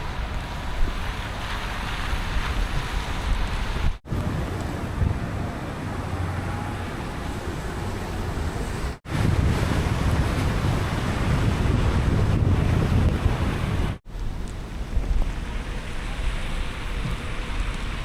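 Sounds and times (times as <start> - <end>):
tyres hissing on wet road: 0.0 - 9.5, 13.4 - 18.0
low road rumble: 0.0 - 18.0
rain: 0.0 - 18.0.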